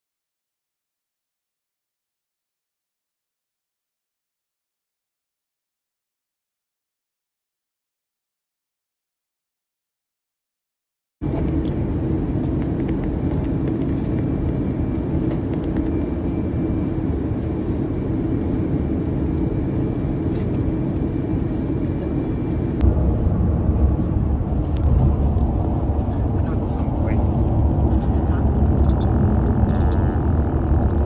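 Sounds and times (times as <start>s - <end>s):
vehicle rumble: 11.2s - 31.0s.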